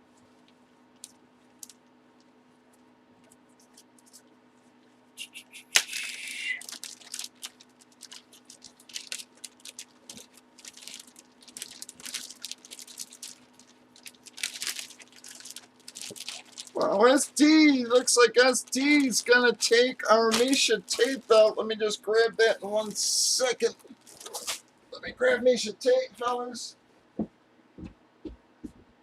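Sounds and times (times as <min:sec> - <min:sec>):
plastic packaging crinkling and tearing: 0:05.8 - 0:21.6, 0:22.5 - 0:24.7.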